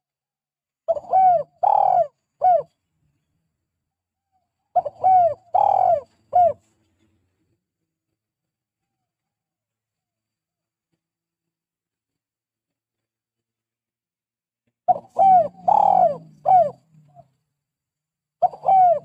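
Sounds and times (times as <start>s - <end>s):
dove cooing: 0.9s - 2.8s, 4.7s - 6.7s, 14.9s - 17.3s, 18.4s - 19.0s.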